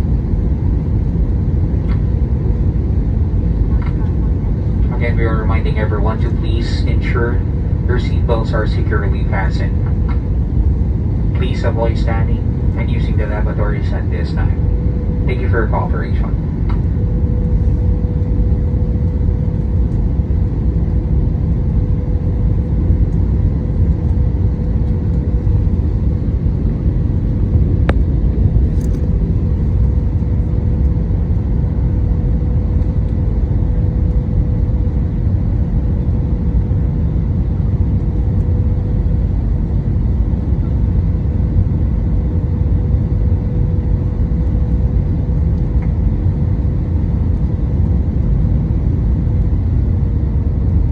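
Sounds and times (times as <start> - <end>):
airliner engines and rushing air: 0.0 - 50.9
steady cabin hum: 0.0 - 50.9.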